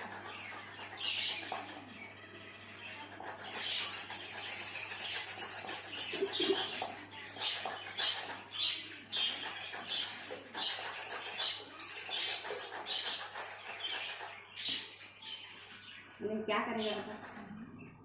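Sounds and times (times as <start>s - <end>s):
parrot chattering raspy calls: 3.2s - 14.4s.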